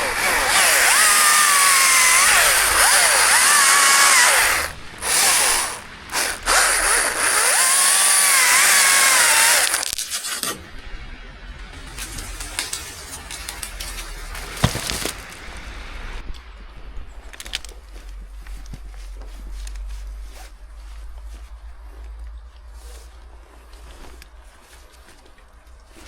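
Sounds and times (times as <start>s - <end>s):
chainsaw running at high revs: 0.0s - 10.0s.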